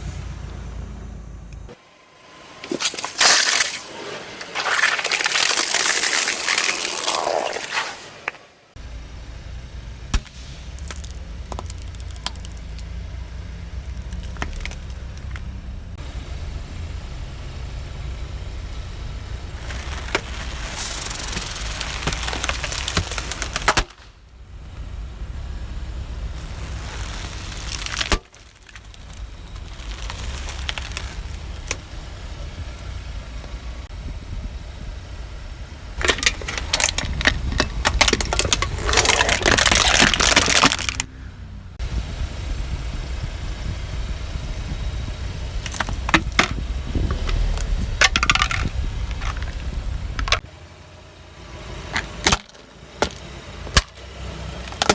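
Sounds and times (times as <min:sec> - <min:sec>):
car engine running: 0:00.0 - 0:54.9
tyres crushing crunchy objects: 0:02.6 - 0:08.5, 0:10.0 - 0:15.6, 0:19.5 - 0:24.2, 0:26.2 - 0:33.6, 0:36.0 - 0:43.4, 0:44.0 - 0:50.5, 0:51.7 - 0:54.9.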